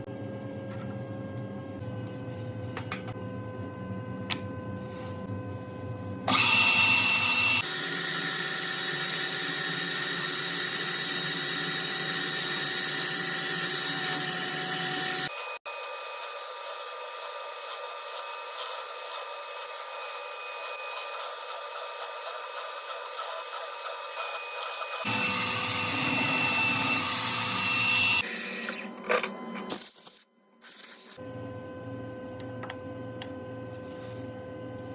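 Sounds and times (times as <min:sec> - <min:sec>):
power tool motor whining: 0:06.3 - 0:15.6, 0:17.7 - 0:28.9.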